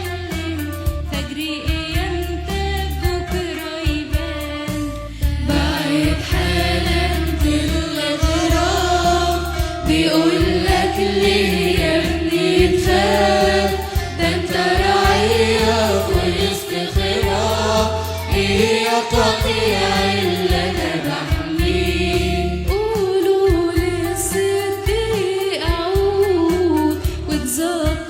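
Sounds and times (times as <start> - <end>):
instrumental accompaniment with bass: 0.0 - 28.0
choir singing a hymn: 5.4 - 22.7.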